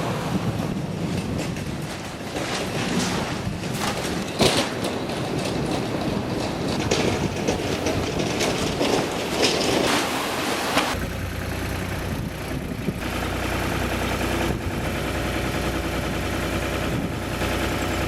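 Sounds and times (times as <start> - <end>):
band sawmill running: 0.0 - 18.0
clanks and clicks: 1.0 - 10.2.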